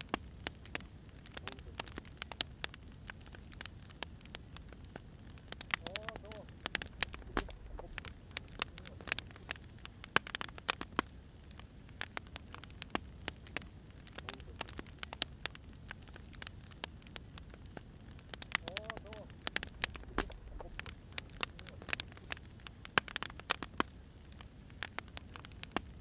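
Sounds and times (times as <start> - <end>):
firewood crackling and popping: 0.0 - 26.0
low rumble of fire: 0.0 - 26.0.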